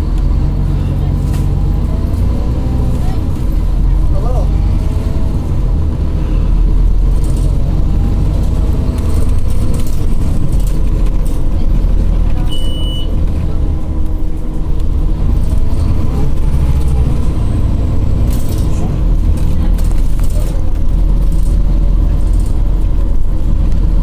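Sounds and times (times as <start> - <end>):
bus engine and road rumble: 0.0 - 24.0
short high beep: 12.5 - 13.2.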